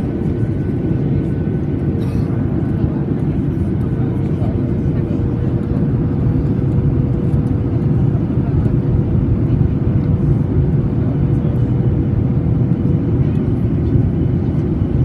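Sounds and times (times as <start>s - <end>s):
engine and airflow rumble: 0.0s - 15.0s.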